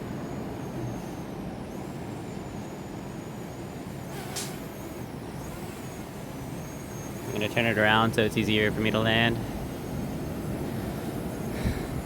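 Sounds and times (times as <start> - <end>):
drone propellers whirring: 0.0 - 12.0
high motor whine: 0.0 - 12.0.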